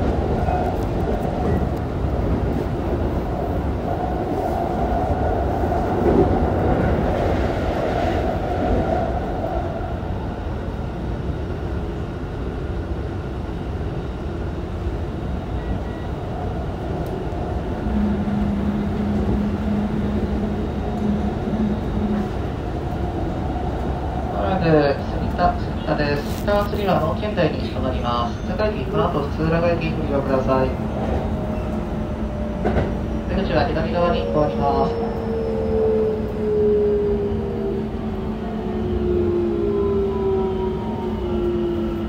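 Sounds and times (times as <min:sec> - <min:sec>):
wheels rumbling on rail: 0:00.0 - 0:42.0.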